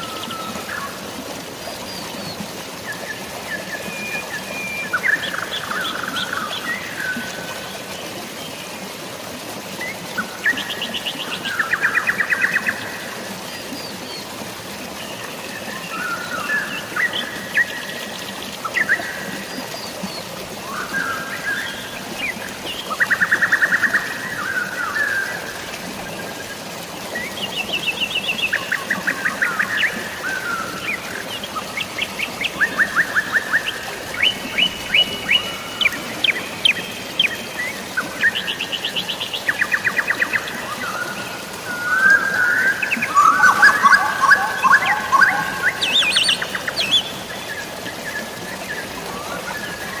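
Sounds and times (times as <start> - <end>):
drizzling rain: 0.0 - 50.0
flowing water: 0.0 - 50.0
birds trilling and chirping: 41.8 - 47.8.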